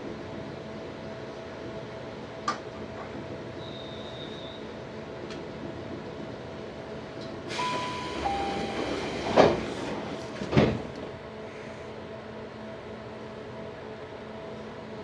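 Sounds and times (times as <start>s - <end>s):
standing train hum: 0.0s - 15.0s
sliding doors thudding: 7.5s - 11.1s.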